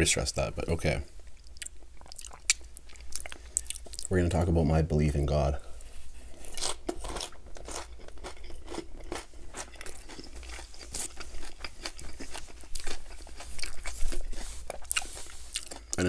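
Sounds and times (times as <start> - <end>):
crunchy salad chewing: 1.4 - 4.1, 6.3 - 16.0.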